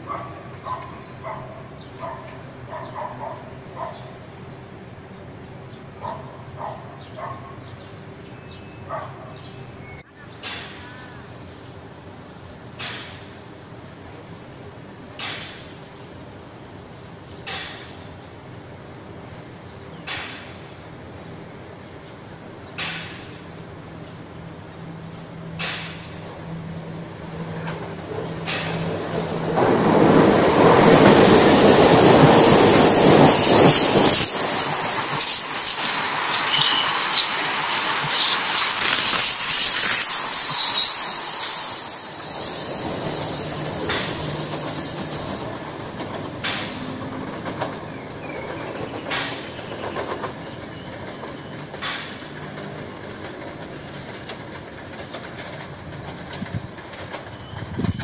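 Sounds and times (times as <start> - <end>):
train wheels rushing on rail: 10.1 - 58.0
high-pitched squeal from train: 28.4 - 47.3, 57.1 - 58.0.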